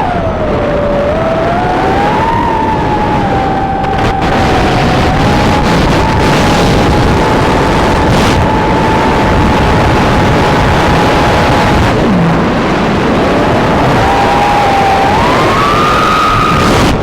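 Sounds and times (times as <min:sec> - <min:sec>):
drone motors whining: 0:00.0 - 0:17.0
rushing wind noise: 0:00.0 - 0:17.0.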